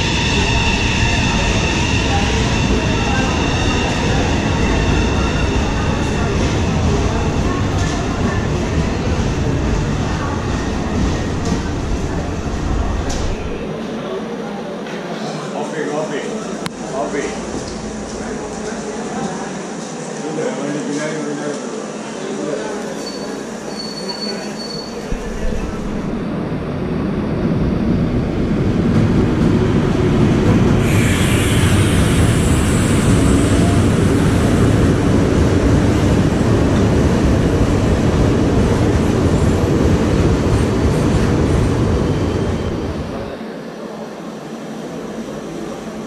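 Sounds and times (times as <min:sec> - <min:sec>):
train wheels rumbling on rails: 0:00.0 - 0:13.7.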